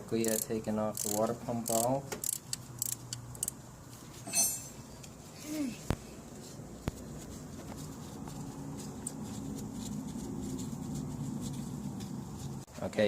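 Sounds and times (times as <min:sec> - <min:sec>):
hand tool clicking on metal: 0:00.2 - 0:03.5.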